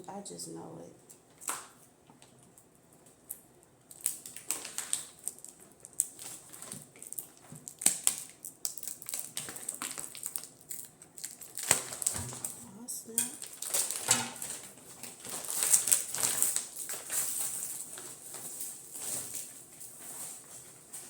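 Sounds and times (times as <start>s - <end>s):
packaging rustling: 3.9s - 12.6s, 13.4s - 21.0s.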